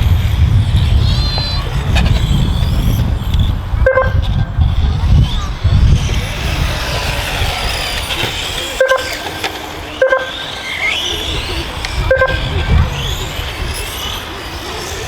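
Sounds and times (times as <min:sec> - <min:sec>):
rc car motors whining: 0:00.0 - 0:15.0
rumble of voices: 0:00.0 - 0:15.0
short beeps: 0:10.0 - 0:10.3, 0:12.1 - 0:12.4.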